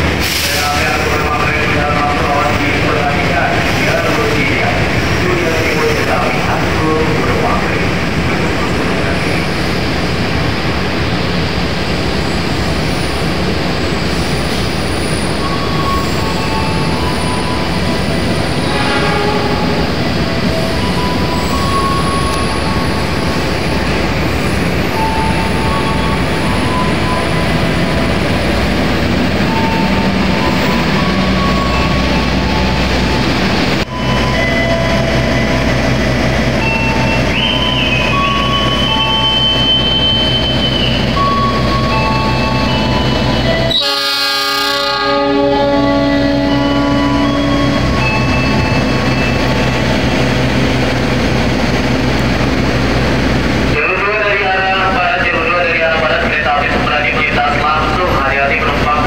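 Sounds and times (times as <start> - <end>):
train wheels rushing on rails: 0.0 - 59.0
high wheel squeal: 14.0 - 23.8, 36.6 - 43.9
train horn chord: 18.7 - 19.9, 43.7 - 47.7.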